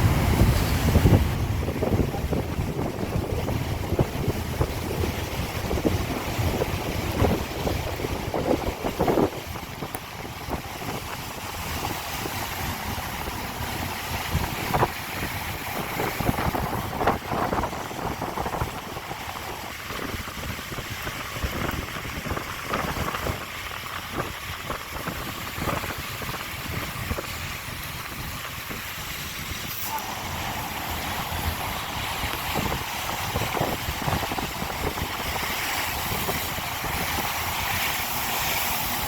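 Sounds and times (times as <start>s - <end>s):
stream rushing over rocks: 0.0s - 39.0s
wind buffeting microphone: 0.0s - 39.0s.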